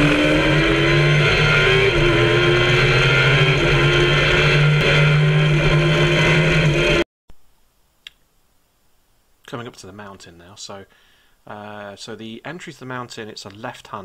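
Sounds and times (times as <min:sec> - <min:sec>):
motorcycle engine under throttle: 0:00.0 - 0:07.0
road noise: 0:00.0 - 0:07.0.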